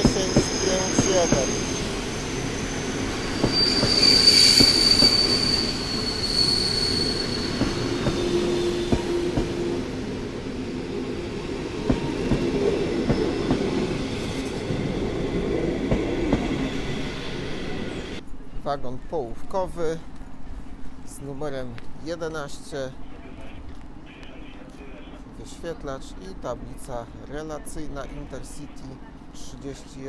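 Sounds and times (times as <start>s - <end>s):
high metallic wheel squeal: 0.0s - 9.8s.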